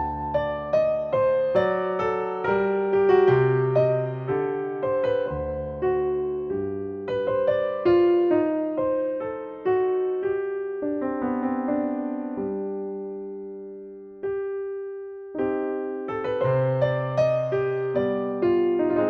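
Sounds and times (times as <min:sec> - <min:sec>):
slow solo piano: 0:00.0 - 0:19.0.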